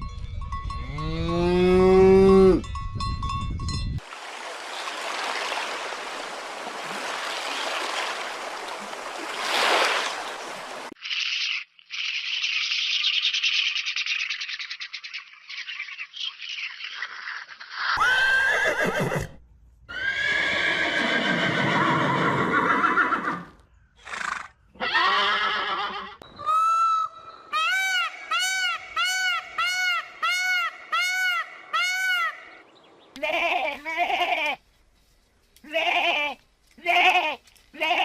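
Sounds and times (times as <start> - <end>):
farm animals calling: 19.9 - 32.6.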